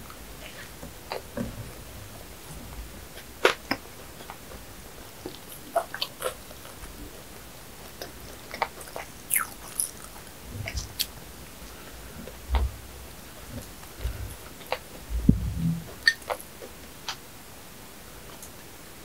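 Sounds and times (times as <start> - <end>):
chewing and biting bread: 3.1 - 11.1
short low thuds: 15.0 - 16.0.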